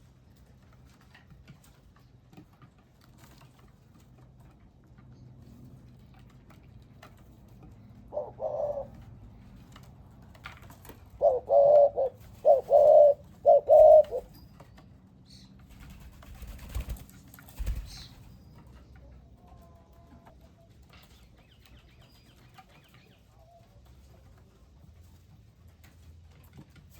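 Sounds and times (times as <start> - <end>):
dove cooing: 7.8 - 9.4, 11.0 - 14.3.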